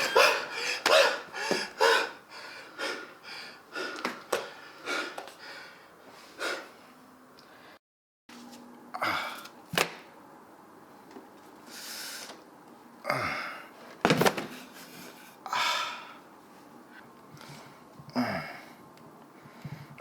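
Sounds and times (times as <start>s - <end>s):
person breathing sharply: 0.0s - 6.9s.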